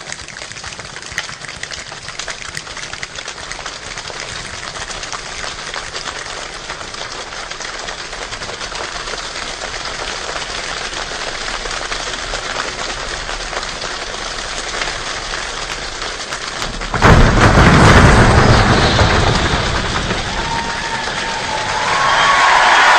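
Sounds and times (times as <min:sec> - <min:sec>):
rain pattering on a surface: 0:00.0 - 0:22.9
loud deep burst of noise: 0:16.6 - 0:22.9.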